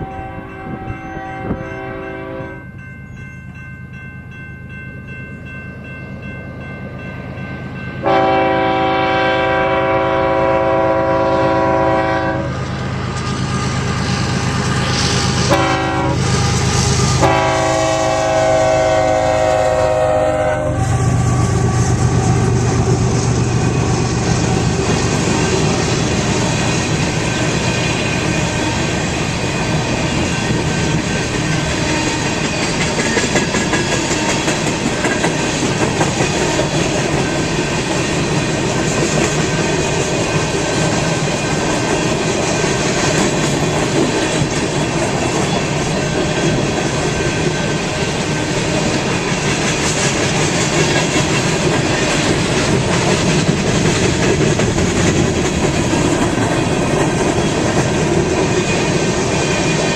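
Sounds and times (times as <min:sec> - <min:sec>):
train rattling on rails: 0:00.0 - 0:59.9.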